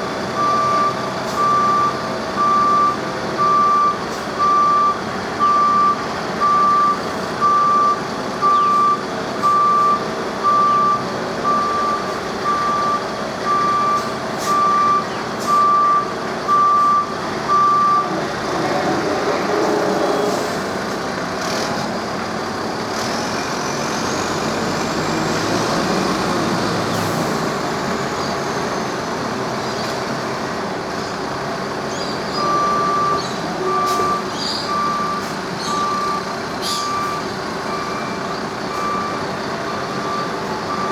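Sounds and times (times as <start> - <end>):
heavy vehicle engine: 0.0 - 40.9
reversing alarm beeping: 0.4 - 18.2, 32.3 - 40.9.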